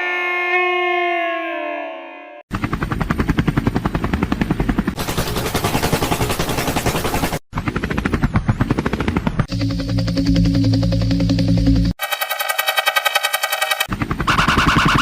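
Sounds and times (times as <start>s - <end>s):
wavering high whine: 9.5s - 15.0s.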